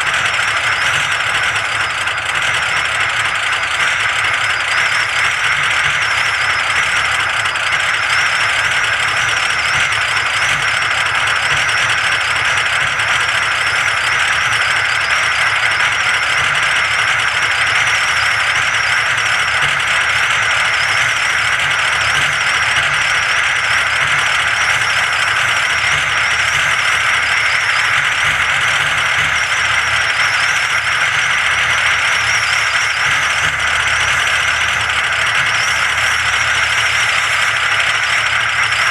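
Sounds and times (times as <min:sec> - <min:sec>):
diesel engine idling: 0:00.0 - 0:38.9
faint wavering whine: 0:00.0 - 0:38.9.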